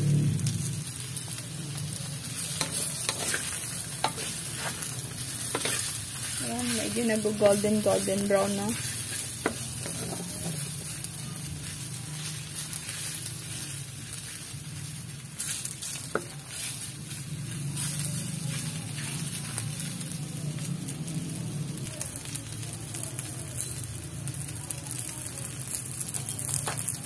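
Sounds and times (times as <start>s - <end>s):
food sizzling in oil: 0.0s - 27.0s
spatula scraping a wok: 0.7s - 20.1s.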